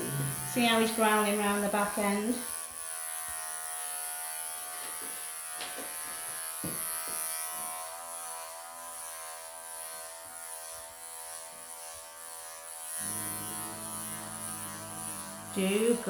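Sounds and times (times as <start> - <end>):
electric clippers buzzing: 0.0 - 16.0.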